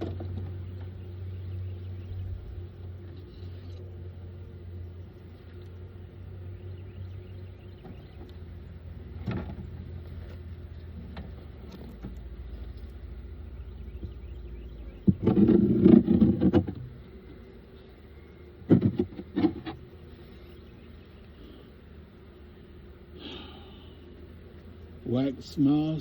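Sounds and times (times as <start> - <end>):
low steady hum: 0.0 - 26.0
wooden beehive parts scraping: 14.9 - 17.4, 18.6 - 20.7.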